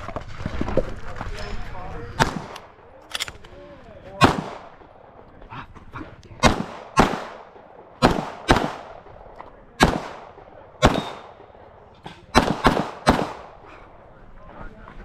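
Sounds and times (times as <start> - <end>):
pistol shots with echo: 2.2 - 3.4, 4.2 - 5.0, 6.4 - 13.9.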